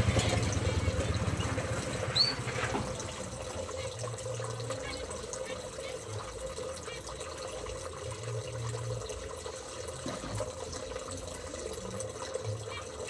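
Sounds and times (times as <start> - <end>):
water running: 0.0 - 13.0.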